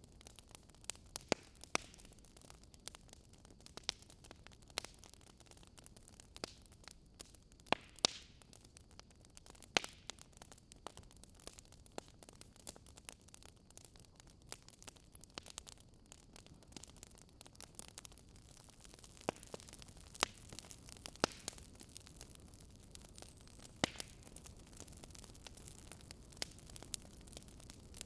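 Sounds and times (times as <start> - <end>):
faint steady hiss: 0.0 - 28.0
wood fire crackling: 0.0 - 28.0.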